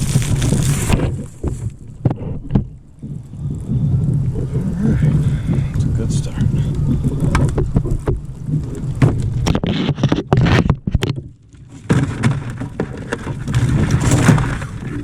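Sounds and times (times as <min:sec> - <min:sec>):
knocks and rattles of crab pot: 0:00.0 - 0:03.2, 0:08.9 - 0:15.0
steady low rumble: 0:02.7 - 0:09.6.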